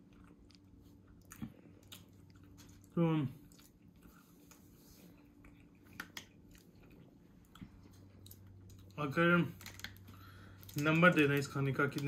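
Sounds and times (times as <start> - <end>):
quiet chewing of food: 0.0 - 9.0
low steady hum: 0.0 - 12.0.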